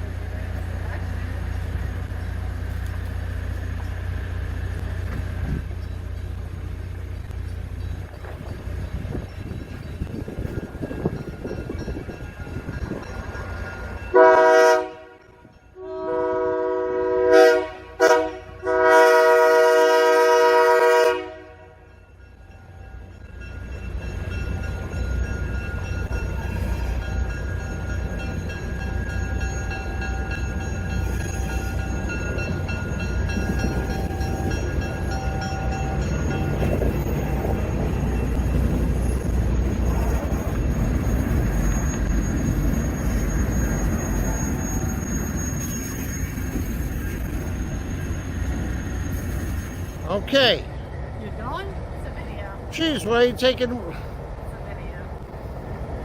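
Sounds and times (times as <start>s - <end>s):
low locomotive rumble: 0.0s - 56.0s
locomotive air horn blasts: 14.1s - 21.8s.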